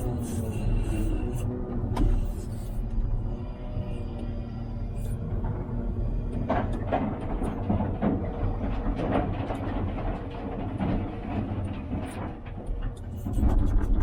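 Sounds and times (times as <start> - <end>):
wheel loader diesel engine: 0.0 - 14.0
debris clattering and knocking: 6.3 - 14.0.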